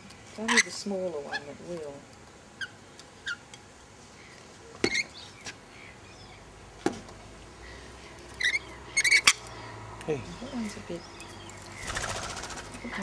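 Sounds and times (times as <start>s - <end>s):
birds chirping: 0.3s - 2.0s, 4.1s - 6.8s, 7.5s - 13.0s.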